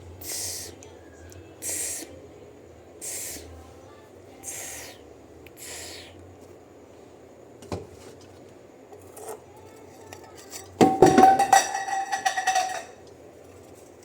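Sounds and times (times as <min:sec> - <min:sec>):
hard objects clinking together: 0:10.0 - 0:13.0.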